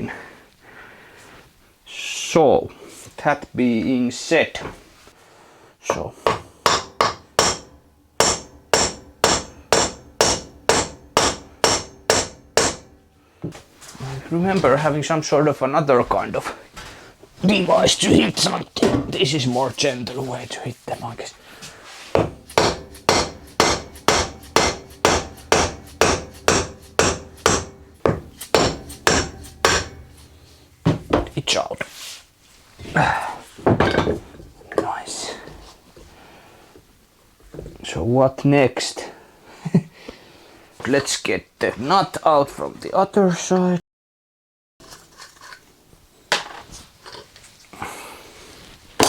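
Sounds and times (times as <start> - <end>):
hammer striking metal: 6.2 - 13.2, 22.1 - 31.5.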